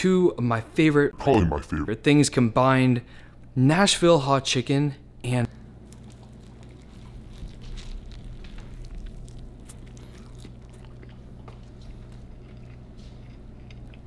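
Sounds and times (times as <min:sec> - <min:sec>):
steady low hum: 0:00.0 - 0:14.0
biting and chewing food: 0:05.5 - 0:14.0.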